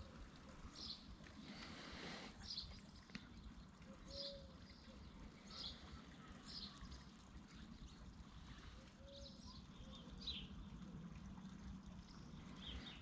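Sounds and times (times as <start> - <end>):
faint bird chirps: 2.4 - 10.6.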